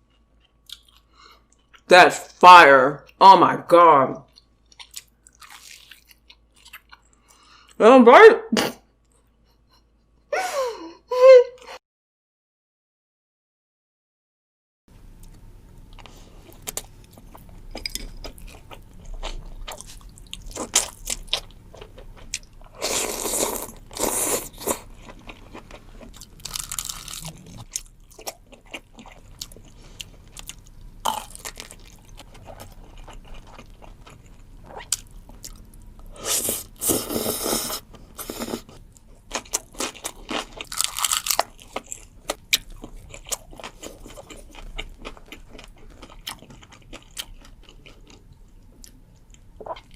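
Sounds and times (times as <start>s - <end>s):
crisp food being chewed: 0.0s - 1.9s, 4.3s - 7.4s, 15.2s - 36.0s, 37.9s - 49.9s
loud crunching bites: 26.2s - 27.6s, 39.4s - 42.0s.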